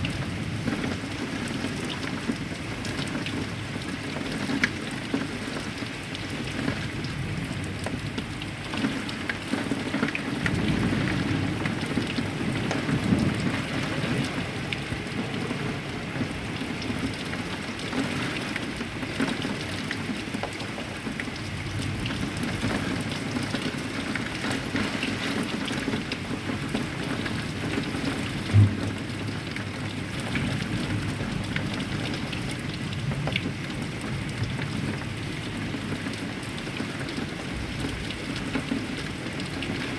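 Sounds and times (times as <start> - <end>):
heavy rain: 0.0 - 39.9
thunder rumble: 10.4 - 15.4, 28.4 - 31.3
short low thump: 28.5 - 29.1.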